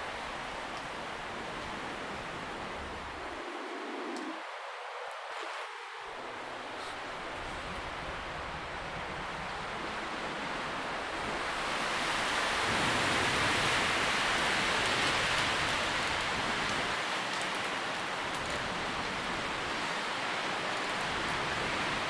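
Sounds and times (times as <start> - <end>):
leaves rustling in wind: 0.0 - 22.0
faint crisp ticks: 0.4 - 1.0, 4.1 - 4.4, 14.3 - 18.8.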